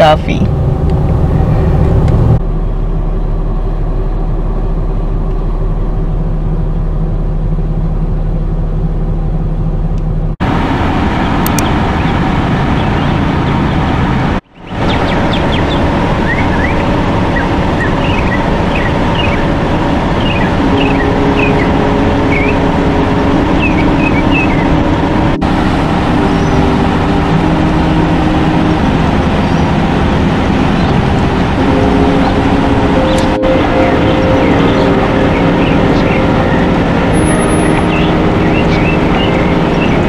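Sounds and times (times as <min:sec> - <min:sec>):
car idling: 0:00.0 - 0:40.0
traffic noise: 0:00.0 - 0:40.0
bird chirps: 0:17.8 - 0:19.5, 0:23.6 - 0:24.7, 0:37.2 - 0:40.0.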